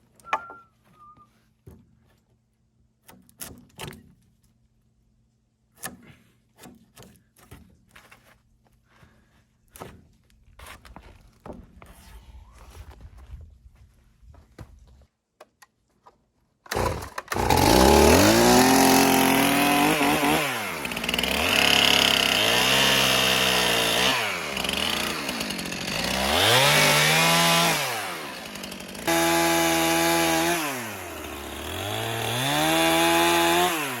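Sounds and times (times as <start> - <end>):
chainsaw engine revving: 16.7 - 34.0.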